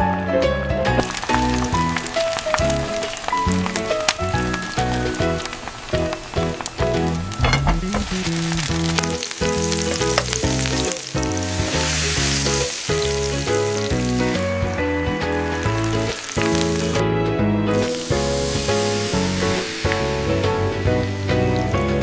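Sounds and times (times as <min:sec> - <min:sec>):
background music: 0:00.0 - 0:22.0
food sizzling in a pan: 0:08.1 - 0:14.4, 0:17.8 - 0:20.6.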